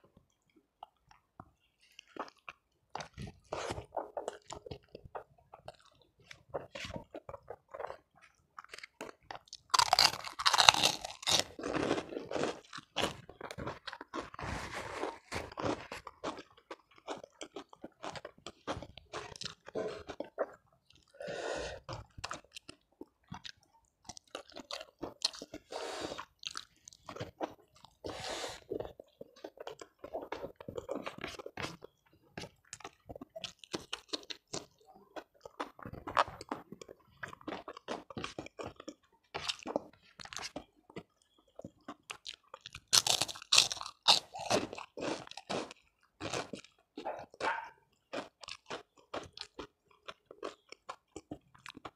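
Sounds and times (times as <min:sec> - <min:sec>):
person chewing crunchy food: 0:00.0 - 0:51.9.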